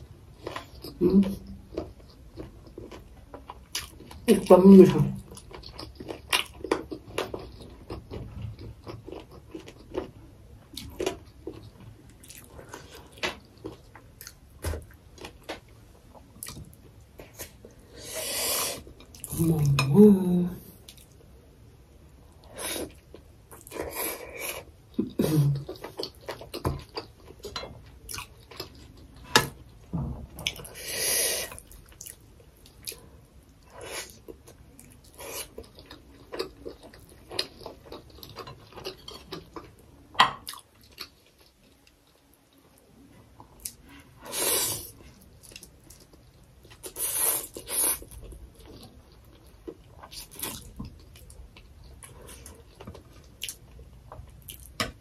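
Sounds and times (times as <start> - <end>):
wet chewing and mouth sounds: 0.4 - 4.3, 5.2 - 19.4, 22.8 - 29.3, 40.4 - 55.0.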